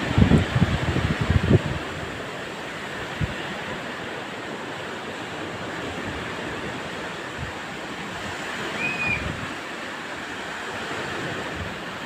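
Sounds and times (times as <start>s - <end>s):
sea waves washing on shore: 0.0s - 12.0s
wind buffeting microphone: 0.0s - 12.0s
short high whistle: 8.7s - 9.4s.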